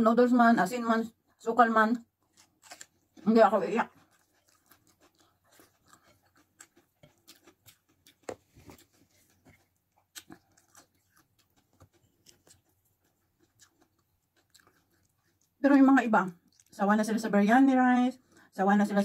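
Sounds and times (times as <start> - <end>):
person chewing food: 2.1 - 15.6, 16.3 - 16.8.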